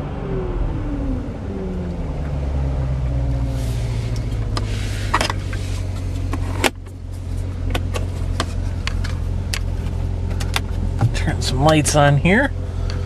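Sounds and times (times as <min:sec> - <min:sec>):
car engine idling: 0:01.0 - 0:13.0.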